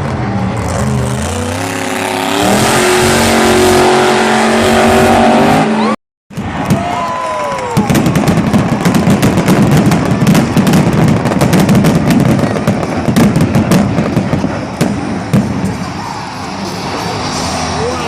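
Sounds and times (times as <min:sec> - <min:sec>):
crackling and popping bangs: 0:06.3 - 0:16.4.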